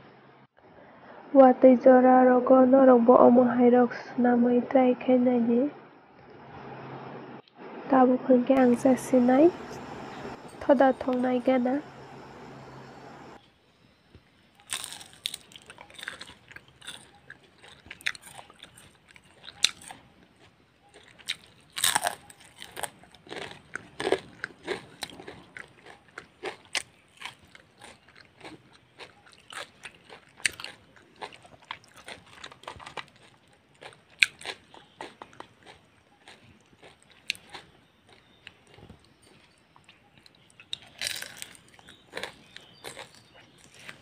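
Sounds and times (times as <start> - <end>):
crunchy fried food chewing: 14.5 - 44.0.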